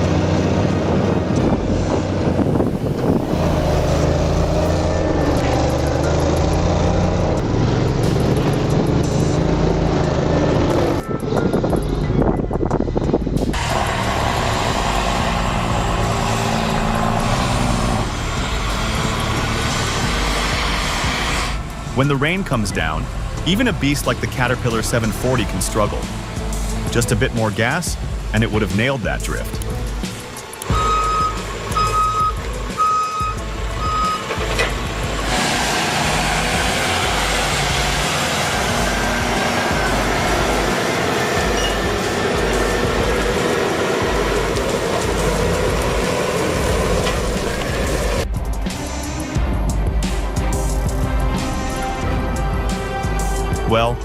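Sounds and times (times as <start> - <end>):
loud steady rushing noise: 0.0 - 54.0
truck engine drone: 0.0 - 54.0
reversing alarm beeping: 30.7 - 34.3, 41.6 - 41.9.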